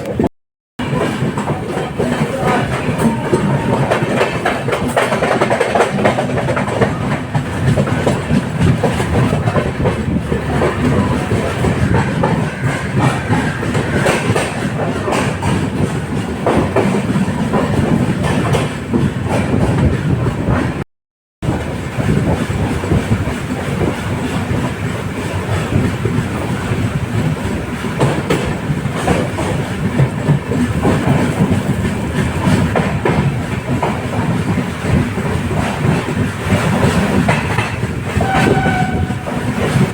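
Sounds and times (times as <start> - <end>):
train rumble: 0.0 - 20.8, 21.4 - 39.9
wheels clacking over rails: 0.0 - 20.8, 21.4 - 39.9.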